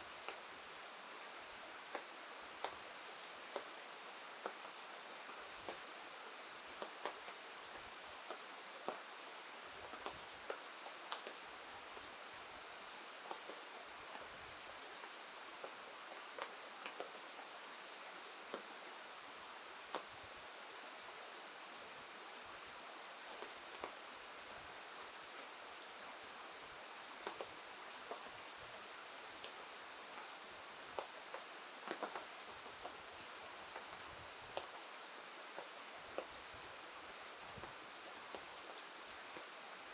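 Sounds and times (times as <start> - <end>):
rain hiss: 0.0 - 39.9.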